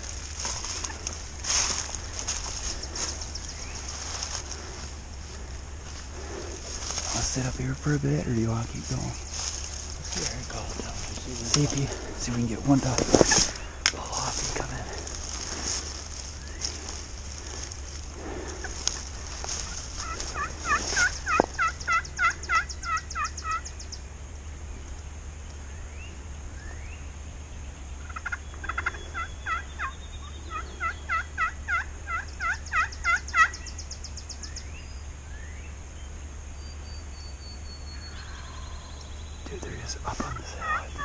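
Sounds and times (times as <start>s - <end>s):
turkey call yelps: 18.5s - 23.7s, 28.1s - 33.8s, 36.8s - 41.0s.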